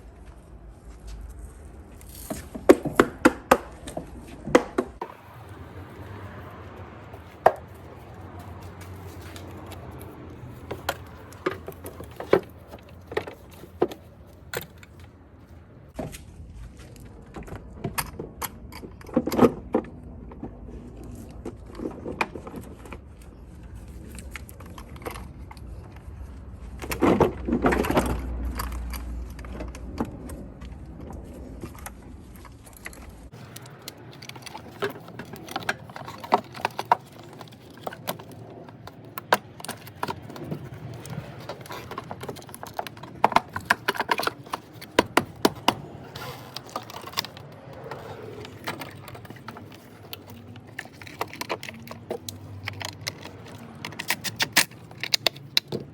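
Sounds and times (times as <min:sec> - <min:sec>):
metal parts clattering: 0:32.4 - 0:55.9.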